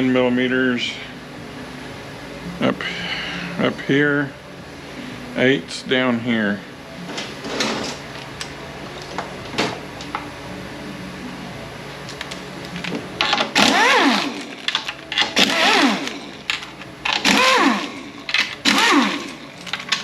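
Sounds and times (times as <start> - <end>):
power driver whirring: 12.2 - 20.0.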